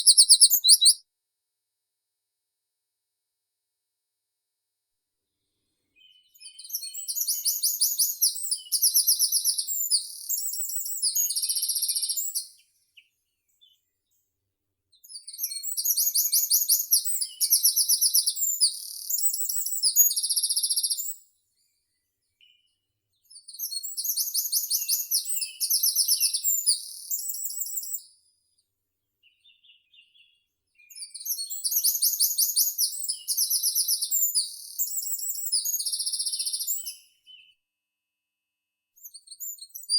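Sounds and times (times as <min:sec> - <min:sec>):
songbird high trills: 0:00.0 - 0:01.0.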